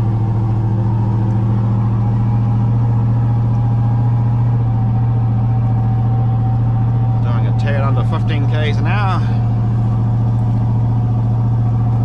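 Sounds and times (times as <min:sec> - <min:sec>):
diesel truck engine droning: 0:00.0 - 0:12.0.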